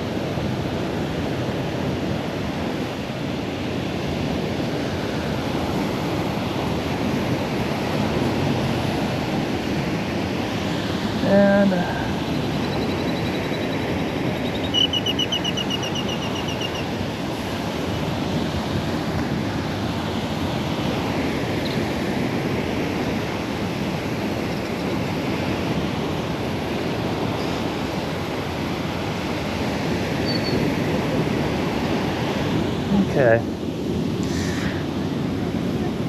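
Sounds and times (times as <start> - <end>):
surf washing on beach: 0.0 - 36.0
wind on microphone: 0.0 - 36.0
metal detector tone and beeps: 12.3 - 16.9, 30.2 - 30.6.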